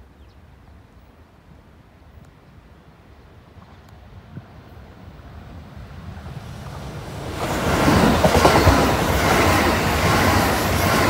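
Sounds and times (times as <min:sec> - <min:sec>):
electric train passing: 0:04.6 - 0:11.0
wheels clattering over rail joints: 0:07.2 - 0:11.0.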